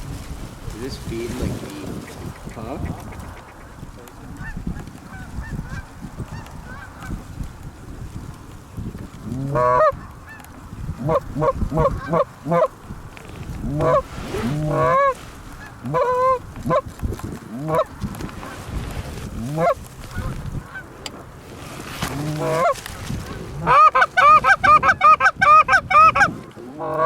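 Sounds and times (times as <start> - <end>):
goose honks and clucks: 9.5 - 10.4, 11.0 - 12.7, 13.6 - 16.9, 17.6 - 17.9, 19.4 - 20.9, 22.2 - 22.8, 23.6 - 27.0.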